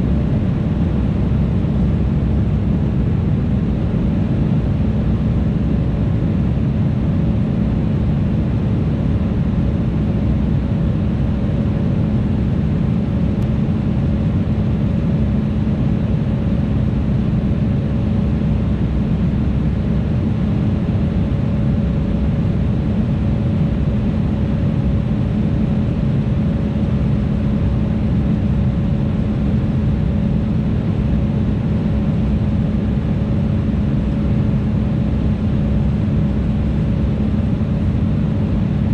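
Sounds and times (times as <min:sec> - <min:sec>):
constant low hum: 0:00.0 - 0:38.9.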